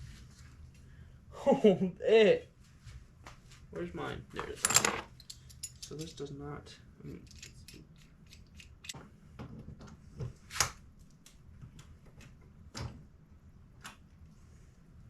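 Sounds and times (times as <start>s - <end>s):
metal clicks and clinks: 4.6s - 6.2s, 7.2s - 9.0s.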